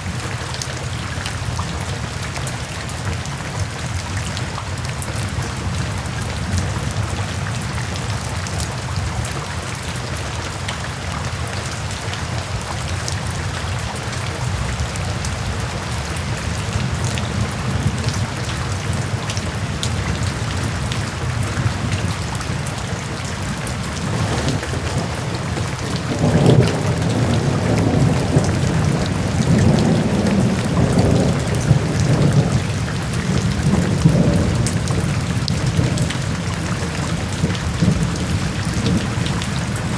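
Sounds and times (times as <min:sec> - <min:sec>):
heavy rain hissing: 0:16.8 - 0:39.9
thunder rumbling: 0:20.0 - 0:39.9.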